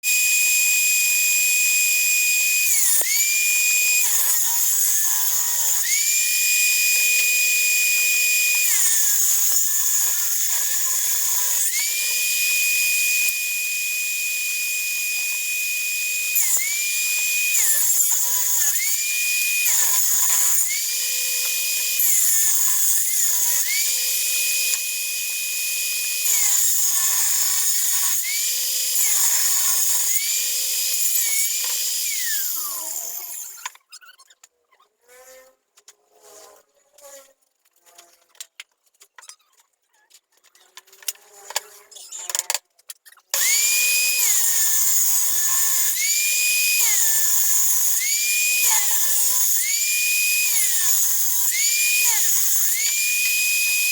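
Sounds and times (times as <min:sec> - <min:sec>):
electric power saw ripping wood: 0:00.0 - 0:33.8, 0:43.4 - 0:53.9.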